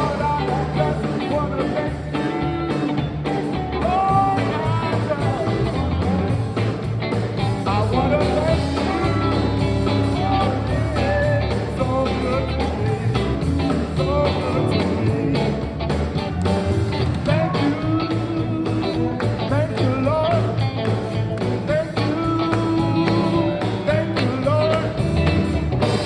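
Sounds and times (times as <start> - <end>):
bass: 0.0 - 26.0
steady drum beat: 0.0 - 26.0.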